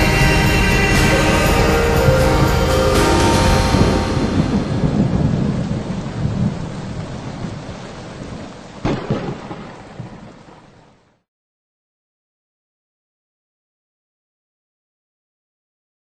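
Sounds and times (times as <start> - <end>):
rumbling thunder: 0.0 - 10.8
rain falling: 0.0 - 11.3
sharp thunderclap: 2.0 - 10.4.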